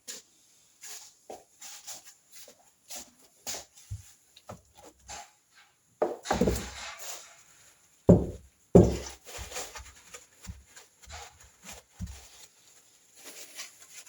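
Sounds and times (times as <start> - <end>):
tools clattering on workbench: 6.0 - 6.8.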